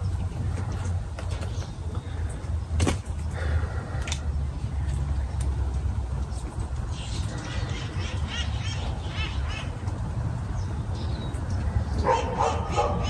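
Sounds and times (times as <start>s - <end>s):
birds chirping: 0.0s - 13.0s
birds cawing: 6.9s - 9.8s.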